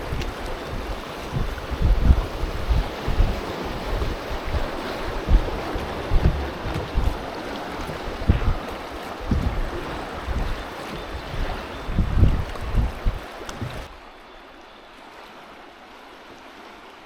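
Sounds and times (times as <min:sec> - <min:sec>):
wind buffeting microphone: 0:00.0 - 0:13.9
rushing river water: 0:00.0 - 0:17.0.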